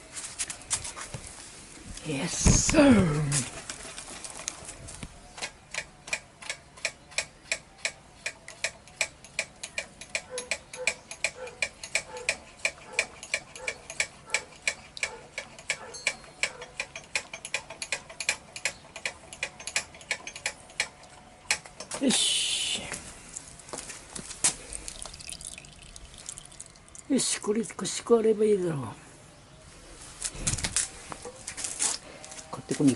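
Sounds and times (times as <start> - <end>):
ratchet wrench clicking: 5.7 - 20.9.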